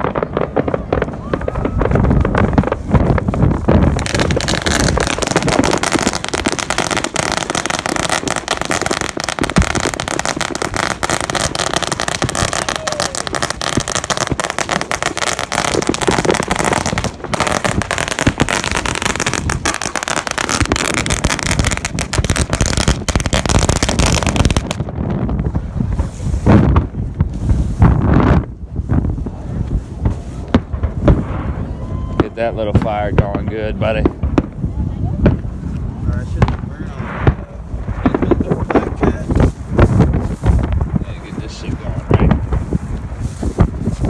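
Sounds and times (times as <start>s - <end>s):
fireworks crackling and popping: 0.0s - 44.0s.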